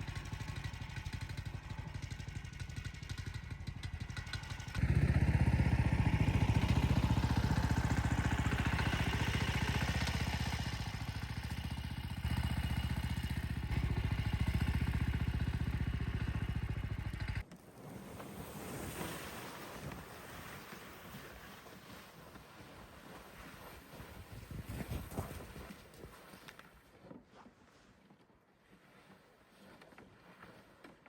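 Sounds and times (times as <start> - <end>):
small engine running: 0.0 - 17.4.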